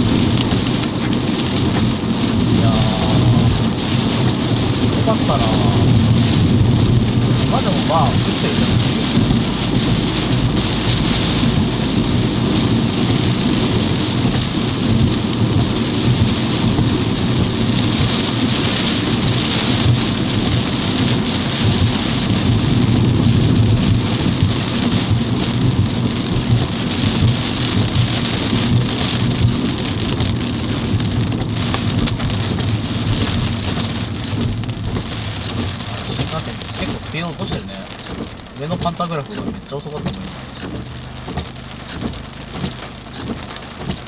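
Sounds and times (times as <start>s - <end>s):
heavy rain on car roof: 0.0s - 44.0s
road and engine hum: 0.0s - 44.0s.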